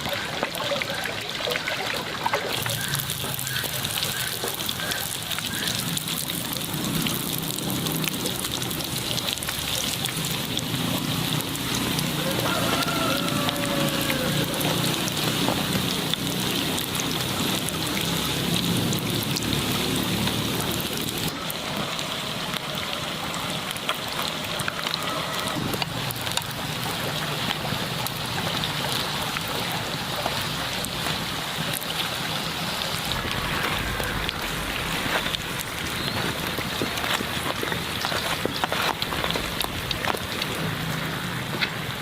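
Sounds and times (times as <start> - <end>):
oil sizzling in a pan: 2.6 - 21.8.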